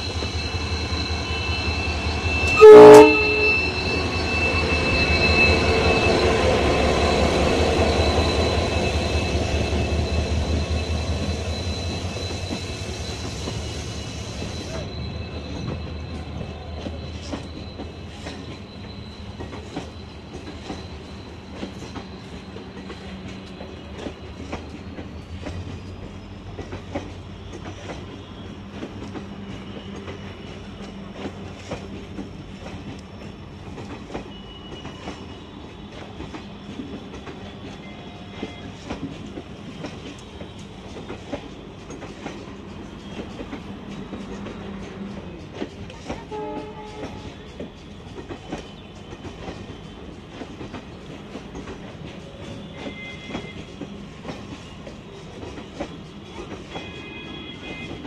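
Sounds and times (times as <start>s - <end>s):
thin high squeal: 0.0s - 6.7s
train wheels clicking over rail joints: 15.5s - 57.0s.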